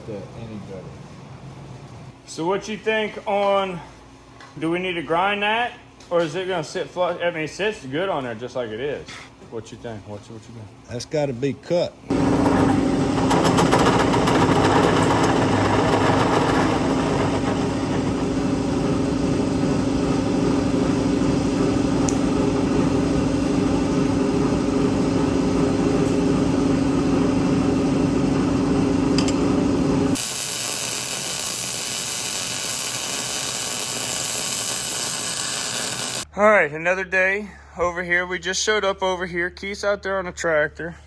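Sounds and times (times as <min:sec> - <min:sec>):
hissing machine: 0:29.1 - 0:36.2
electric power tool humming: 0:30.1 - 0:36.2.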